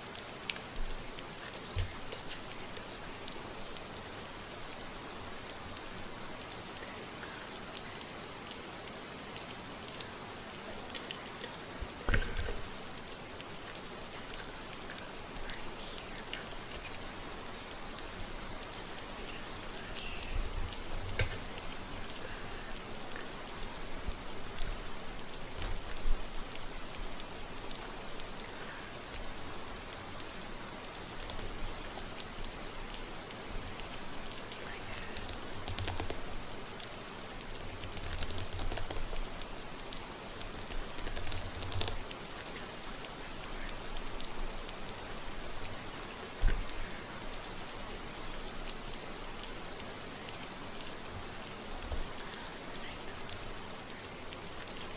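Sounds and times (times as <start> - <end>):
steady rain: 0.0 - 54.9
fingers rustling through hair: 34.3 - 36.8, 37.4 - 39.4, 40.4 - 42.2.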